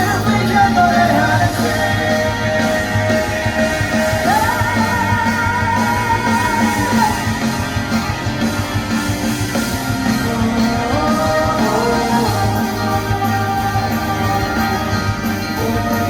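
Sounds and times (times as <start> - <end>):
bass: 0.0 - 16.0
drums: 0.0 - 16.0
guitars: 0.0 - 16.0.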